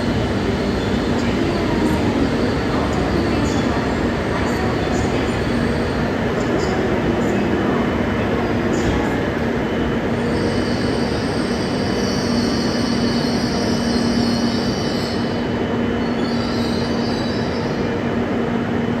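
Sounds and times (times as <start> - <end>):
train rumble and hum: 0.0 - 19.0
high-pitched train squeal: 10.2 - 18.1.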